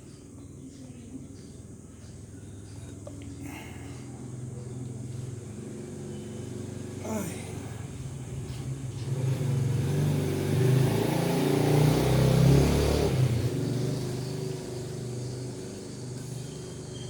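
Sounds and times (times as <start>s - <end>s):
vehicle engine passing by: 4.4s - 17.0s.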